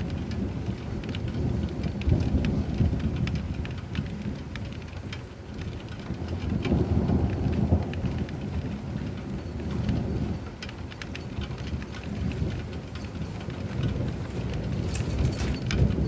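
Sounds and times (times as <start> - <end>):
raindrops ticking on surface: 0.0 - 16.0
steady rain: 0.0 - 16.0
distant thunder rumble: 6.0 - 16.0.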